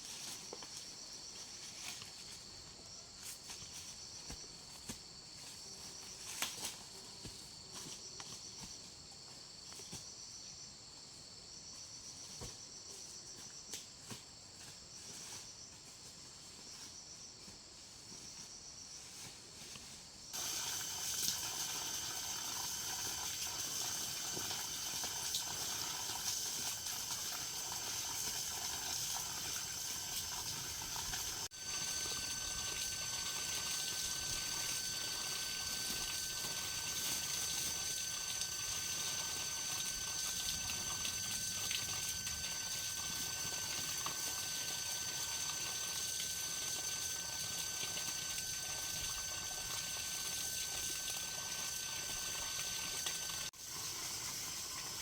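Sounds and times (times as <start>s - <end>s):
dense insect chorus: 0.0s - 55.0s
insects buzzing and trilling: 0.0s - 55.0s.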